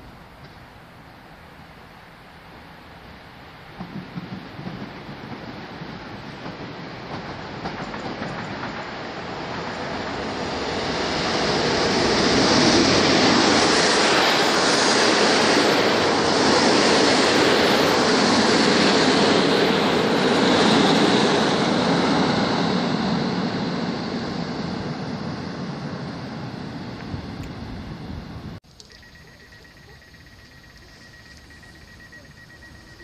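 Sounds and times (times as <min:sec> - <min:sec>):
train wheels rolling on rails: 0:03.1 - 0:22.4.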